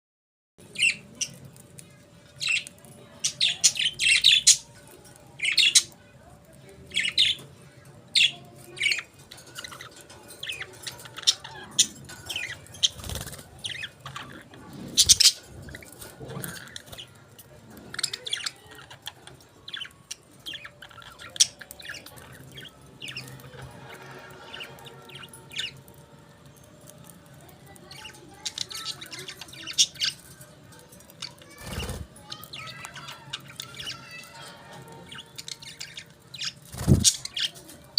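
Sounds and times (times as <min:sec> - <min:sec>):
budgerigars chirping and chattering: 0:00.6 - 0:37.9.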